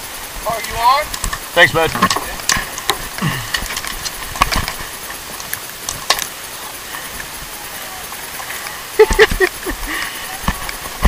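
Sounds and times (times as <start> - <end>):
rushing wind and water: 0.0 - 11.0
fishing gear clicks and knocks: 0.6 - 6.4.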